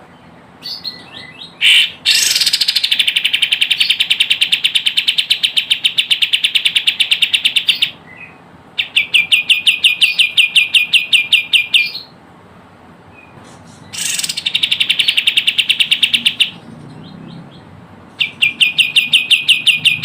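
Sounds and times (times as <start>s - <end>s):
bird trilling high notes: 18.2s - 20.0s.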